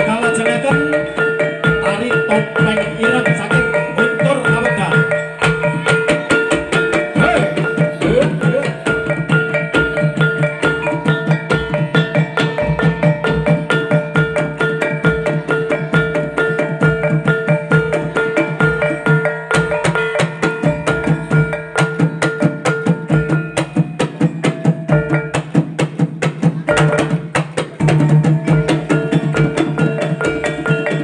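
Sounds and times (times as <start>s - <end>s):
held ringing tones: 0.0s - 25.6s
fast percussion strokes: 0.0s - 31.0s.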